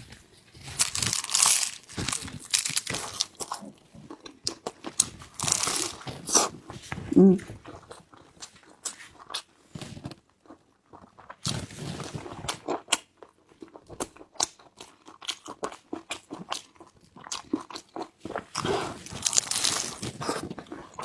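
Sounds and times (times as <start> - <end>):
crunchy chewing of food: 0.6 - 6.5, 13.6 - 21.0.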